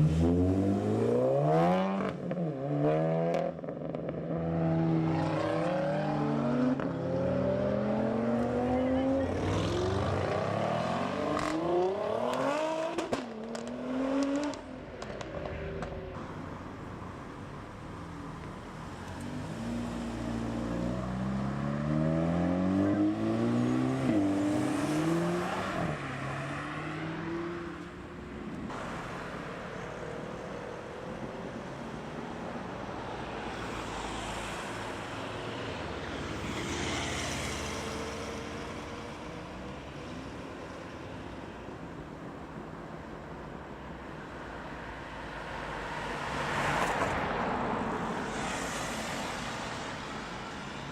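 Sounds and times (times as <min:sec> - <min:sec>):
car passing with tyre noise: 0:00.0 - 0:50.9.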